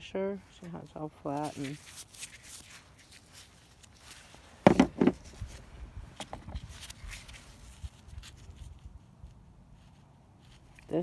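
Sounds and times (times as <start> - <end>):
rocks knocking together: 4.7 - 5.2.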